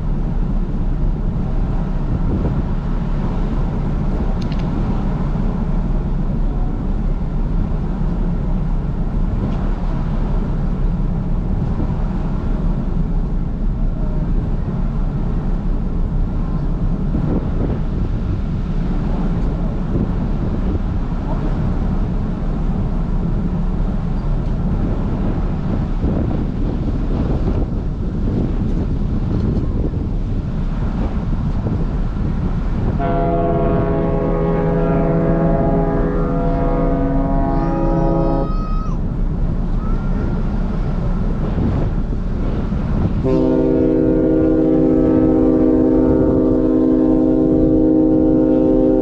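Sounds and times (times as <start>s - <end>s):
low rumble of ferry: 0.0s - 49.0s
wind on microphone: 0.0s - 49.0s
ferry horn blasts: 32.9s - 38.5s, 43.2s - 49.0s.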